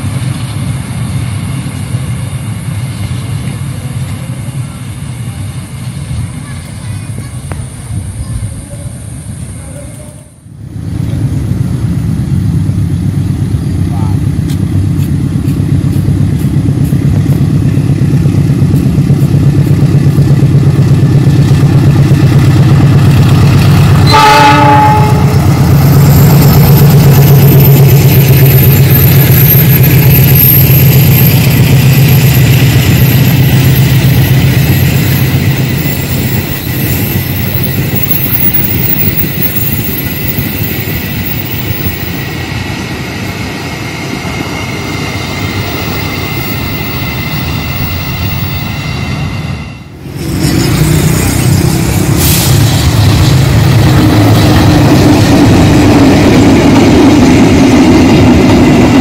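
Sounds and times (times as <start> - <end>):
locomotive engine drone: 0.0 - 59.0
train horn blast: 24.0 - 25.5.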